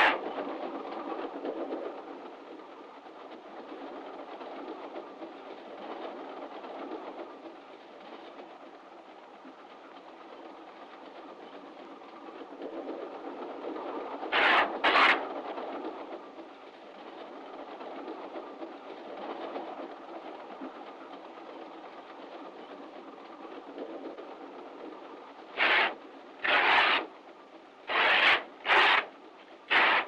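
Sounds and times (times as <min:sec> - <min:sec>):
railway carriage rumble and clatter: 0:00.0 - 0:30.0.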